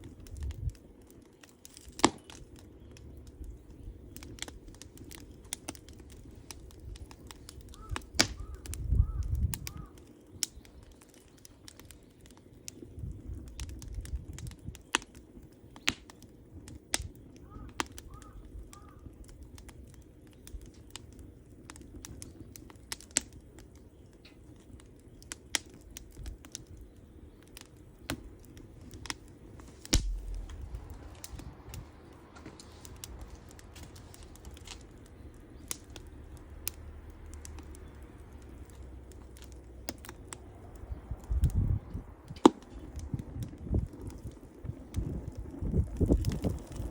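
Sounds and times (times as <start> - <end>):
campfire crackling and popping: 0.0 - 46.9
low rumble: 30.0 - 34.6.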